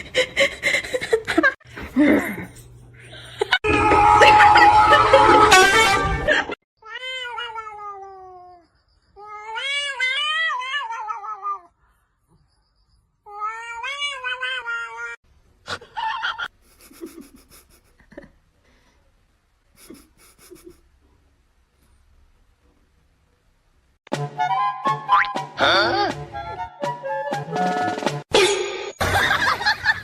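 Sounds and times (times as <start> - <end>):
cat yowling: 6.9 - 8.6, 9.2 - 11.7.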